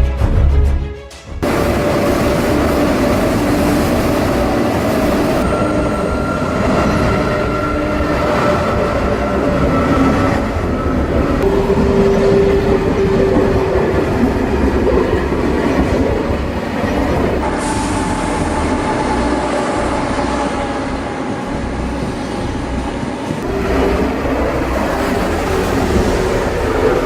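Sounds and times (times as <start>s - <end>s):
train rumbling on track: 0.0s - 27.0s
steady whine: 1.4s - 16.6s.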